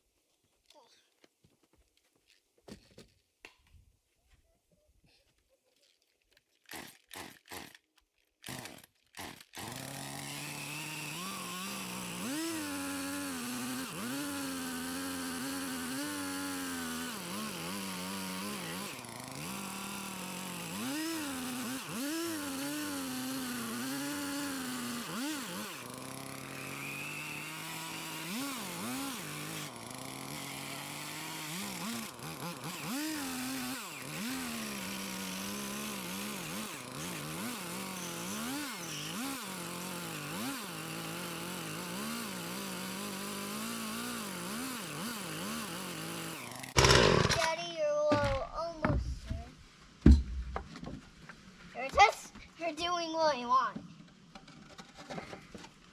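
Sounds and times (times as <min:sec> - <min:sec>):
chainsaw starter pulls: 0:05.8 - 0:47.6
chainsaw revving cutting wood: 0:06.7 - 0:07.8, 0:08.4 - 0:47.5.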